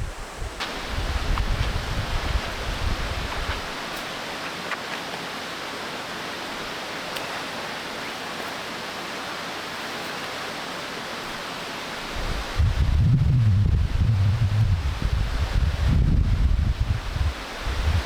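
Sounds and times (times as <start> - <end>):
waterfall and river rushing: 0.1 - 12.9.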